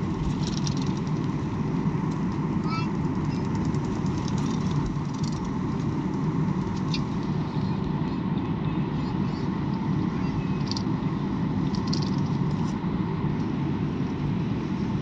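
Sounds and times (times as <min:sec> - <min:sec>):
airliner engine rumble: 0:00.0 - 0:15.0
faint steady hum: 0:00.0 - 0:15.0.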